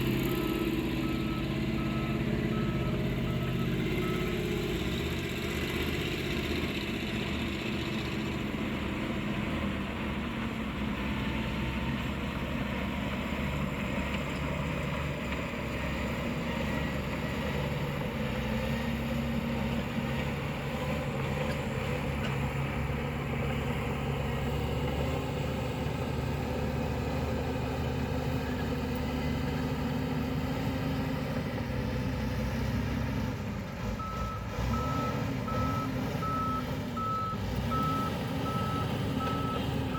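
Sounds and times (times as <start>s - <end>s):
heavy machine engine humming: 0.0s - 39.9s
reversing beeper beeps: 0.2s - 4.6s, 34.0s - 39.9s.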